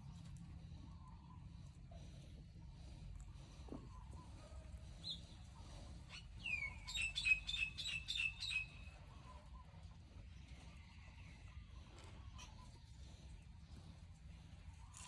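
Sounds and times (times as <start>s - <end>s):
faint low rumble: 0.0s - 6.9s, 8.7s - 15.0s
songbird calling: 4.9s - 9.0s.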